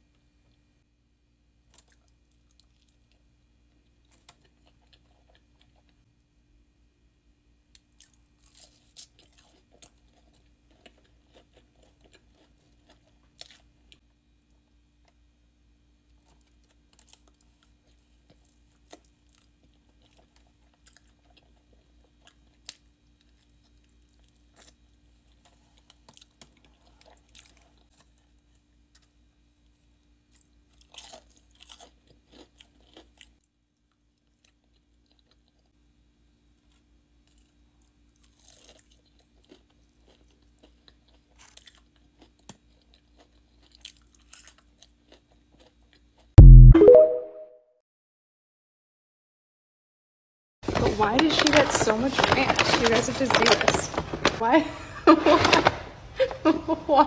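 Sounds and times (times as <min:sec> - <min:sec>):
chewing crunchy fried chicken: 0:01.6 - 0:06.2, 0:07.7 - 0:46.4.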